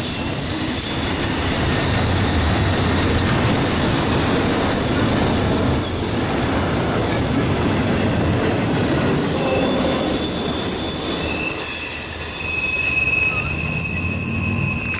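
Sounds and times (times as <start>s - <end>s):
freight train rumble and clatter: 0.0s - 14.9s
train wheel squeal: 0.0s - 14.9s.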